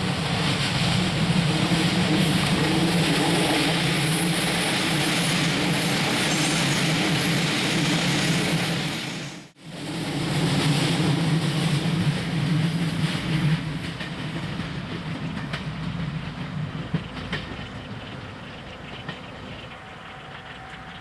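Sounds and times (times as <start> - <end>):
train engine hum: 0.0 - 21.0
train wheel noise: 0.0 - 21.0
sharp rail clicks: 13.4 - 21.0.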